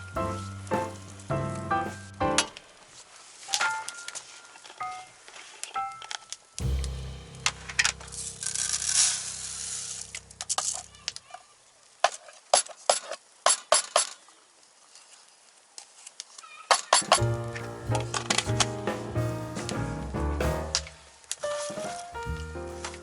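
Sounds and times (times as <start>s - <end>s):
background music: 17.2s - 20.8s.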